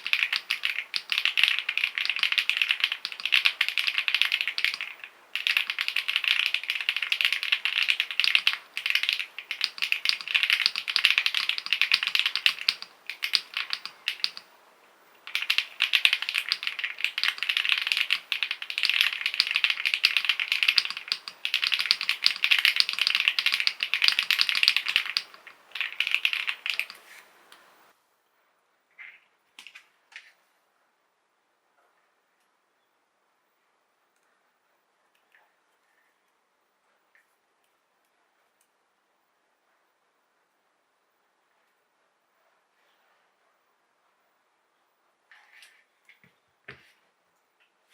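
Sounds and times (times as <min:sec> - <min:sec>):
mechanical keyboard typing: 0:00.0 - 0:27.8.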